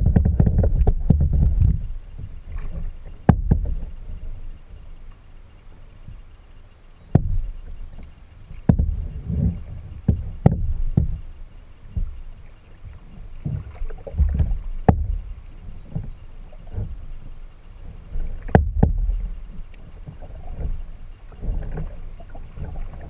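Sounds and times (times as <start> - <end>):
paddle knocking on hull: 0.0 - 4.0, 7.1 - 7.6, 8.5 - 11.3, 12.9 - 17.2, 18.0 - 23.0
water sloshing against kayak hull: 0.0 - 23.0.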